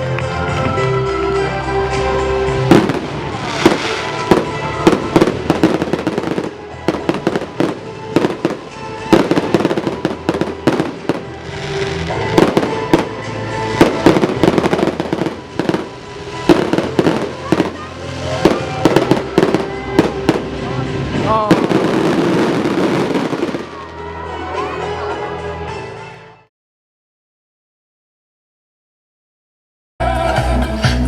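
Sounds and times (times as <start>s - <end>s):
loud show music: 0.0s - 26.4s, 30.0s - 31.0s
fireworks bangs and crackles: 2.5s - 24.2s.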